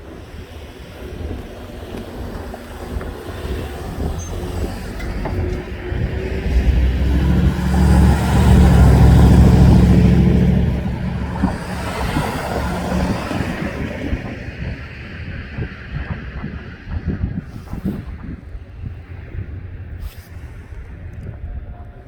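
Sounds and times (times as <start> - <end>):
freight train rolling past: 0.0 - 16.8.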